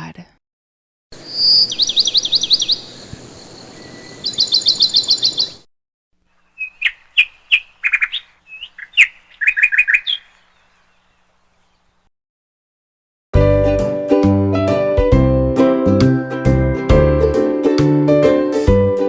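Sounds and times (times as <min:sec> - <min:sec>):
small birds chirping: 0:01.1 - 0:12.1.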